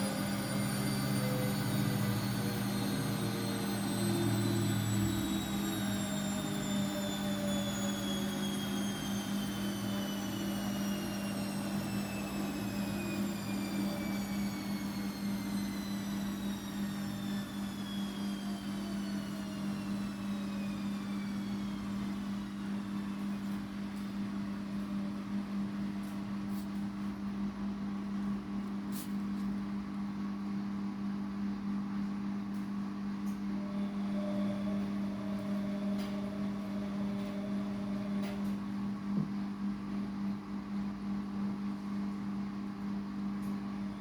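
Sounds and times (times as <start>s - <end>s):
washing machine motor whine: 0.0s - 44.0s.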